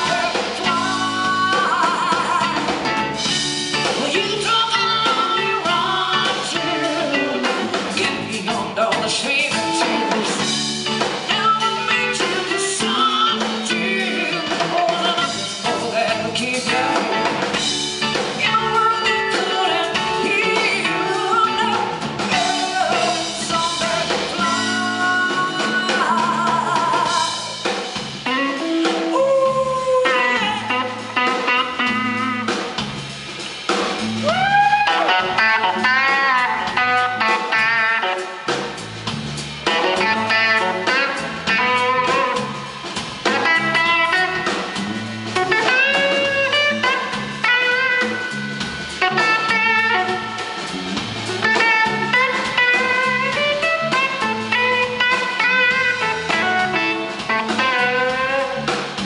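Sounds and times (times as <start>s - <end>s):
bass guitar: 0.0s - 59.0s
drum kit: 0.0s - 59.0s
lead guitar solo: 28.3s - 32.6s, 34.0s - 38.8s, 39.6s - 59.0s.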